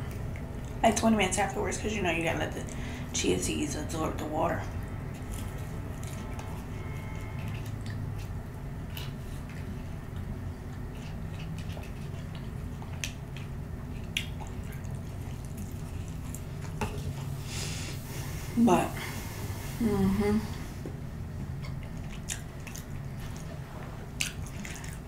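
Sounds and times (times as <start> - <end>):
chewing with wet mouth clicks: 0.0 - 0.8, 5.2 - 17.3, 21.5 - 25.0
steady low hum: 0.0 - 25.0.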